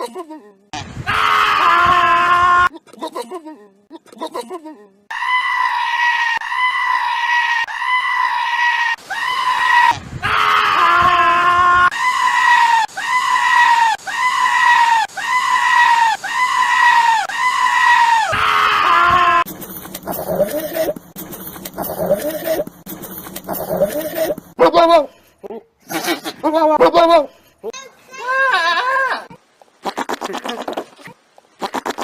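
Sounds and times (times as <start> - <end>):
goat screaming: 5.1 - 19.5, 28.2 - 30.8
lower goat bleat: 29.8 - 30.8, 31.6 - 32.0.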